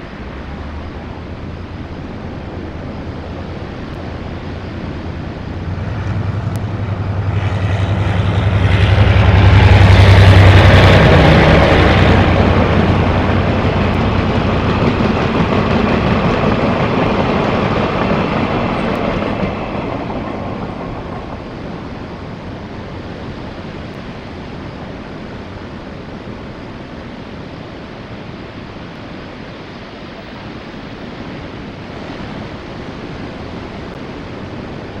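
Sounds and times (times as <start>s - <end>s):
train wagons rumbling: 0.0s - 24.0s
locomotive humming: 0.0s - 35.0s
wind: 0.0s - 35.0s.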